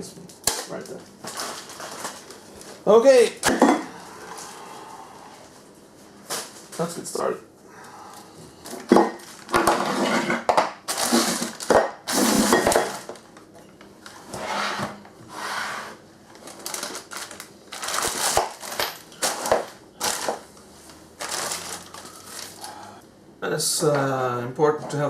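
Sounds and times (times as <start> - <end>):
hardware clattering and rustling: 0.5 - 2.8, 8.6 - 13.2, 16.4 - 20.4.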